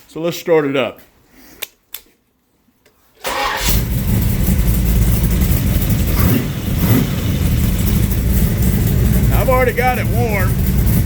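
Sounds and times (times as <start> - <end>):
engine cranking and starting: 3.2 - 11.0
engine idling: 3.3 - 11.0.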